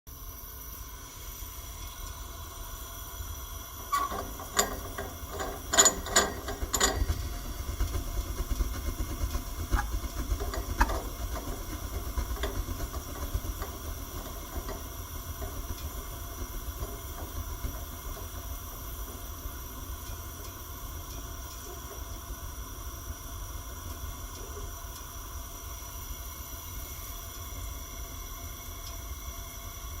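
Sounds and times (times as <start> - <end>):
gas furnace rumbling: 1.0 - 24.4
metallic clicks and knocks: 4.0 - 7.4, 9.8 - 16.0.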